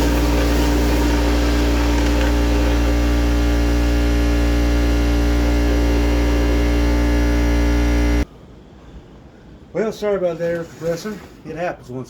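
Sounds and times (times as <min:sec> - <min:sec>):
air compressor humming: 0:00.0 - 0:08.3.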